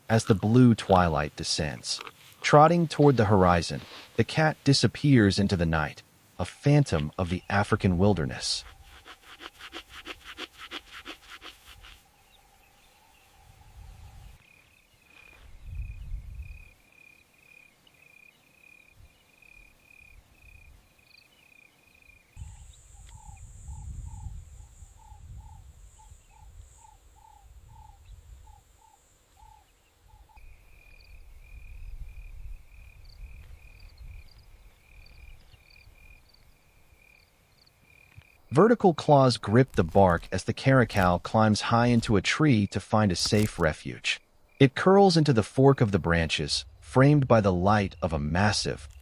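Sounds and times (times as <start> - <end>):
high insect chirps: 7.4 - 38.5
lower pulsed insect call: 8.3 - 38.5, 44.2 - 44.7
low wind rumble: 12.0 - 14.4, 15.4 - 16.8, 22.4 - 37.0.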